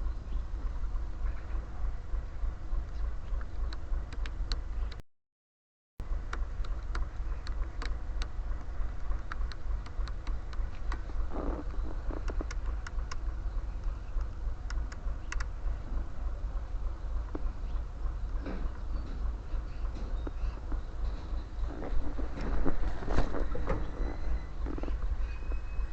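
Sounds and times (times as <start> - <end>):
steady low rumble: 0.0 - 5.0, 6.0 - 25.9
sharp clicks and ticks: 2.8 - 5.0, 6.0 - 15.7.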